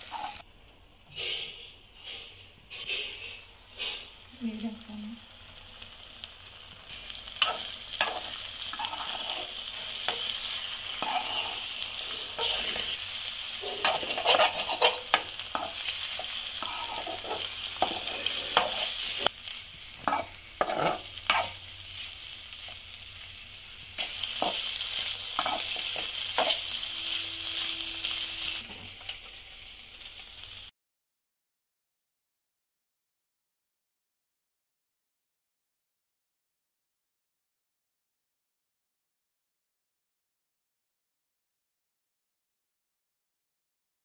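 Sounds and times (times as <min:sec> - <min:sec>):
metal spatula scraping pan: 0:00.0 - 0:00.4, 0:01.1 - 0:04.2, 0:07.3 - 0:19.3, 0:20.0 - 0:22.8, 0:24.0 - 0:29.2
eggs sizzling in pan: 0:00.0 - 0:30.7.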